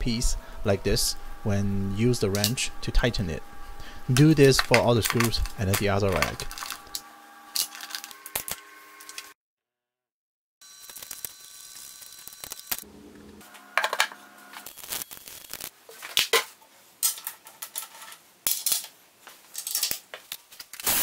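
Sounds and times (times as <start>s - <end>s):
metal parts clinking: 4.2s - 8.5s, 17.0s - 20.0s.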